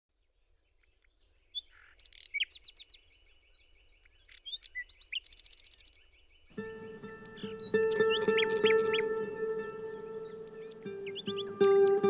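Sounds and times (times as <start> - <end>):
songbirds singing and chirping: 0.1 - 12.0.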